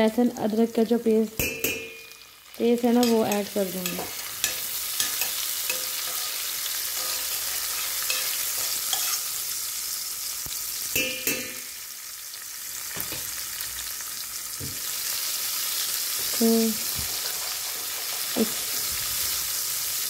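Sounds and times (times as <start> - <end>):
food sizzling in hot oil: 0.0 - 20.0
spatula scraping a pan: 3.0 - 9.4, 17.0 - 19.4.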